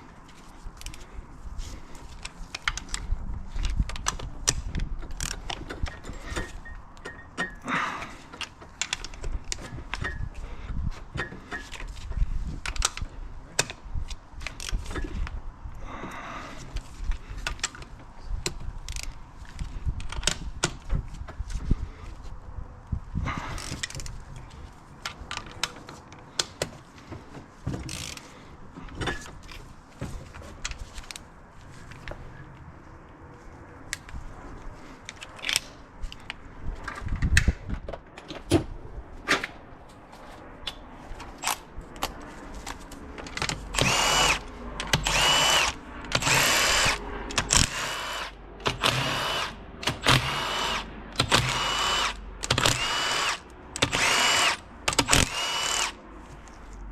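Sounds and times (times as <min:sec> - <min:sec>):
tools and metal parts clinking: 0:02.5 - 0:07.7
power drill whining: 0:43.7 - 0:56.0.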